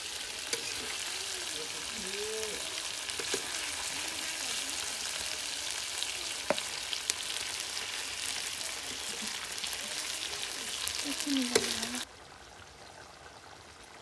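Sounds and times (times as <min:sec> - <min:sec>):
chicken sizzling in oil: 0:00.0 - 0:14.0
metal spatula stirring: 0:00.4 - 0:01.8, 0:02.6 - 0:04.4, 0:11.4 - 0:12.0.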